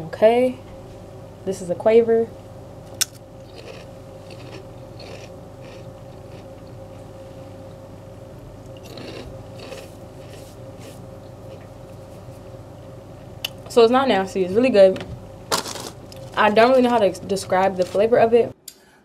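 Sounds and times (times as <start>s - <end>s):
faint steady hum: 0.0s - 19.0s
person chewing crisps crunching: 3.0s - 7.1s, 8.7s - 12.0s, 15.5s - 16.4s.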